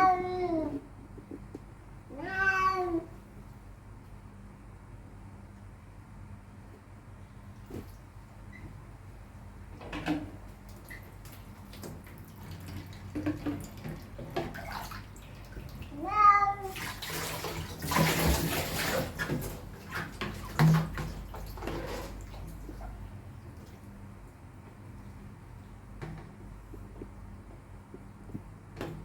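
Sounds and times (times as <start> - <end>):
water spraying and splashing: 16.6 - 22.3.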